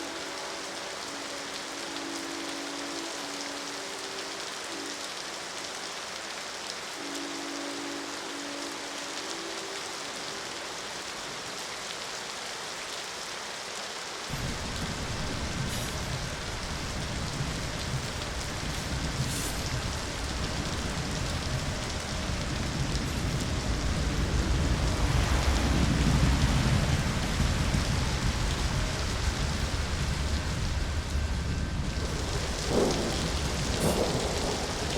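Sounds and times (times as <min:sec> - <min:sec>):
steady rain falling: 0:00.0 - 0:34.9
deep rumble: 0:14.3 - 0:34.9.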